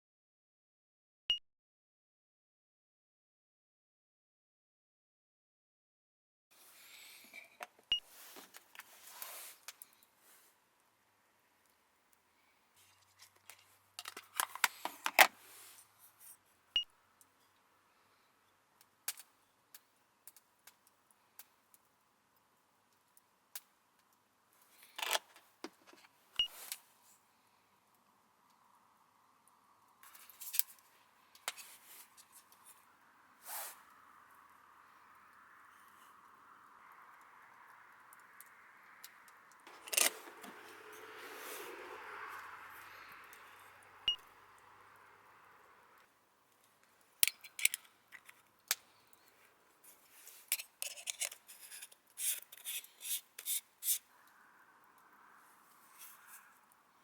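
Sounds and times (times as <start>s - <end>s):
short scraping and rubbing: 49.9s - 54.1s.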